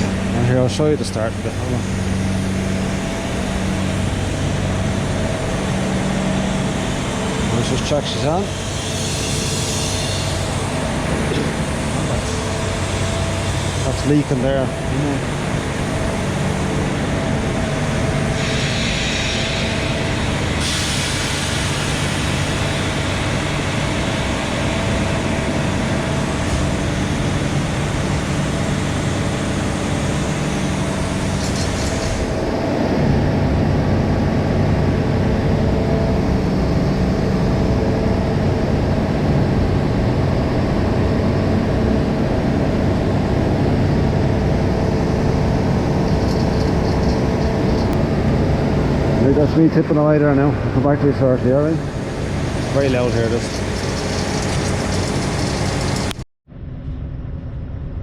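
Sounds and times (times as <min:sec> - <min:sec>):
strong hiss: 0:00.0 - 0:32.6, 0:49.2 - 0:56.2
truck engine running under load: 0:00.0 - 0:56.2.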